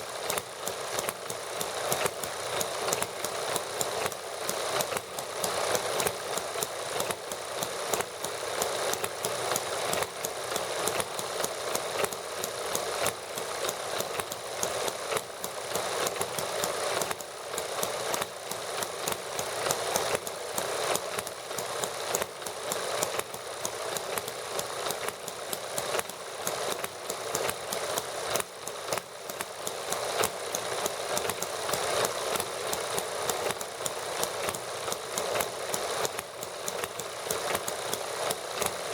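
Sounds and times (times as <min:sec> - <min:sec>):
model gasoline engines running: 0:00.0 - 0:38.9.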